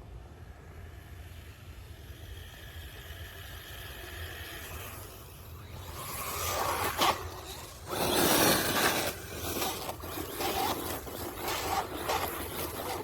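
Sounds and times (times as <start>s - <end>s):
rc car tyres scraping: 0.6s - 13.0s.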